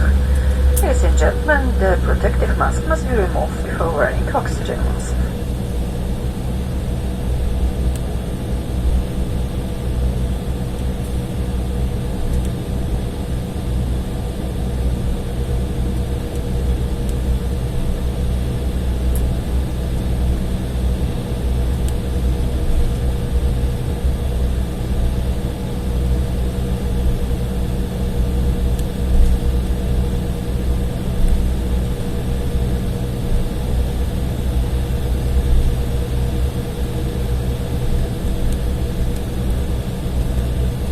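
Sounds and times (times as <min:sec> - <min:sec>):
faint steady hum: 0:00.0 - 0:13.6
jet engines idling: 0:00.0 - 0:23.0.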